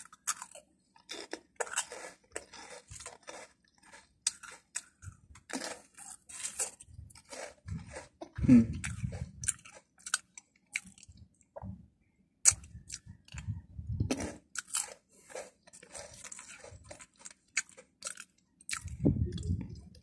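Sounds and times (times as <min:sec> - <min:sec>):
person chewing crunchy chips: 0:00.0 - 0:11.5, 0:12.4 - 0:20.0.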